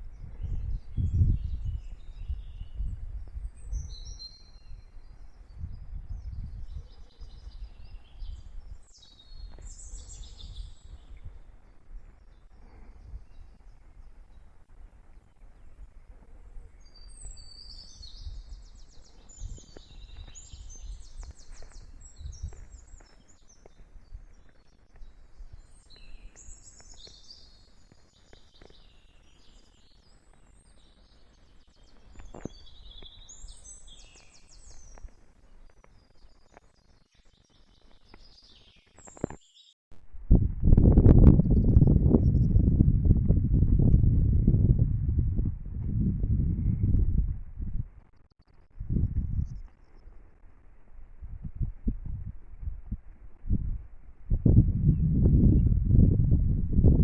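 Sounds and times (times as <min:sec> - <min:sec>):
songbirds chirping and trilling: 0:00.1 - 0:39.8.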